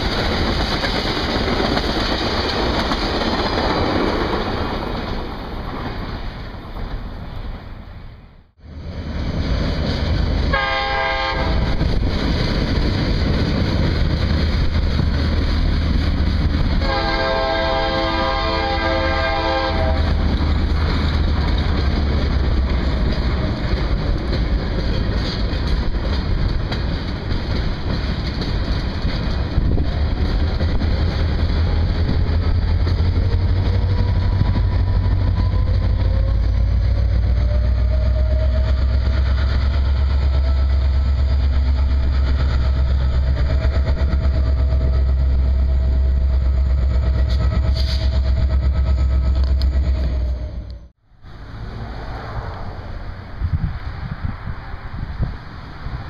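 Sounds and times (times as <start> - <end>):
train wheels rumbling on rail: 0.0 - 56.0
diesel locomotive horn: 10.5 - 11.8, 16.8 - 20.4, 33.2 - 39.5, 47.2 - 48.4.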